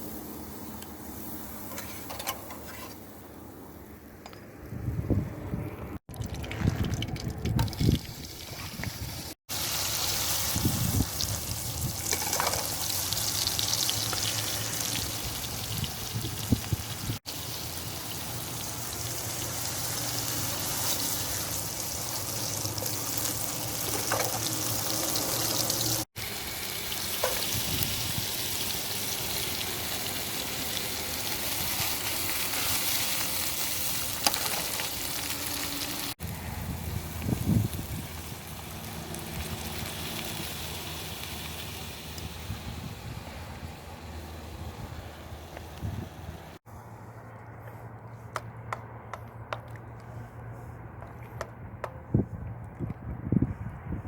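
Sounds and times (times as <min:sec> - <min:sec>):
liquid bubbling and sizzling in a pan: 0:06.1 - 0:36.2, 0:36.8 - 0:43.4.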